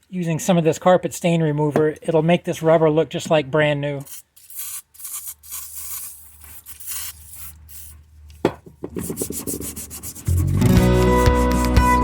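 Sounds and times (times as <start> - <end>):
scrubbing rubber seal: 4.0 - 8.0, 8.9 - 11.8.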